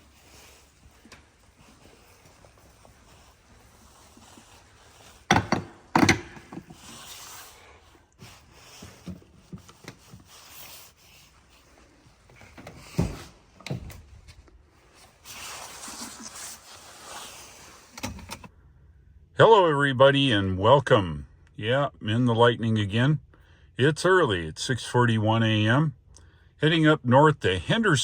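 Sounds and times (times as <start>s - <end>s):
rustling: 0.0s - 18.0s.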